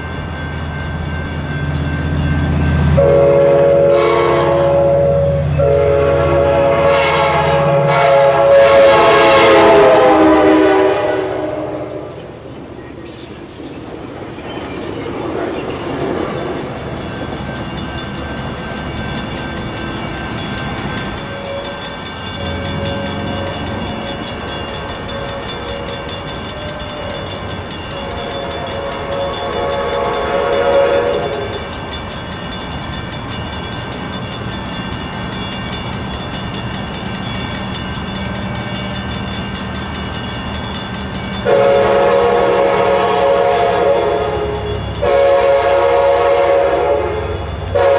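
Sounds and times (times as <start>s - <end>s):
passenger train running on rails: 0.0s - 47.9s
train air horn blasts: 2.9s - 12.3s, 28.0s - 31.7s, 41.4s - 47.9s.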